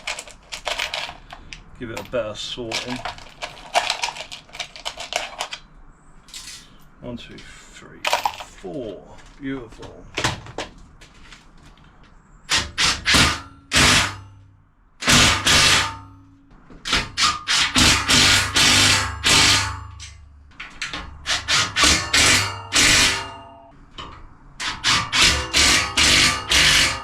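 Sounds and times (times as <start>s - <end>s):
power tool bursts: 12.5s - 14.2s, 17.4s - 19.7s, 24.7s - 27.0s.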